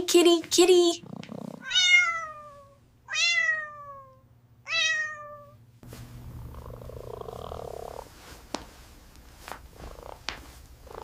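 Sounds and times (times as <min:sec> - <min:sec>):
cat purring: 0:00.7 - 0:02.8, 0:06.1 - 0:08.5, 0:09.5 - 0:11.0.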